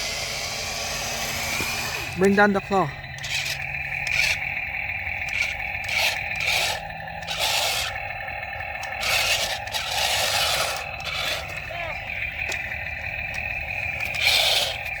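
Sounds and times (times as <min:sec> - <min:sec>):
small electric motors whining: 0:00.0 - 0:15.0
scraping noises: 0:08.8 - 0:15.0.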